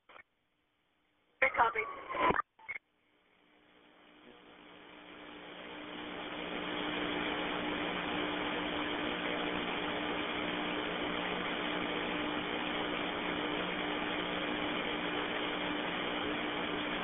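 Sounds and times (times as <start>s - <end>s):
radio channel hiss: 4.1s - 17.0s.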